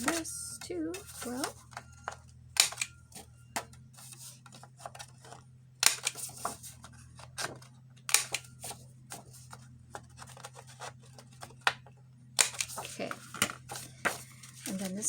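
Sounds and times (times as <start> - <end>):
paper handling: 0.0 - 1.8, 3.6 - 15.0
corner punch snapping through paper: 2.6 - 2.9, 5.8 - 6.5, 7.4 - 8.5, 12.4 - 14.8.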